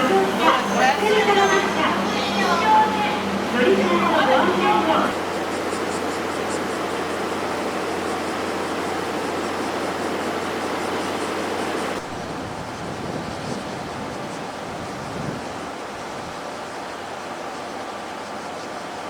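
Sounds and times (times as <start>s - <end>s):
steady hum: 0.0s - 12.9s
train wheels rumbling on rail: 0.0s - 19.0s.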